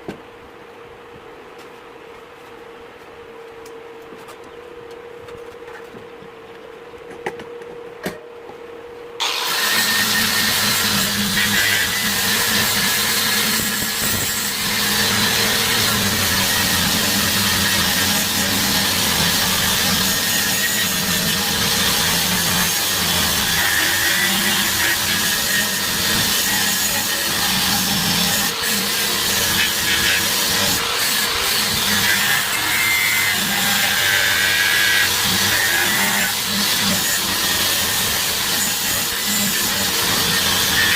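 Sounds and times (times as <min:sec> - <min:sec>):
power tool motor humming: 0:09.2 - 0:40.9.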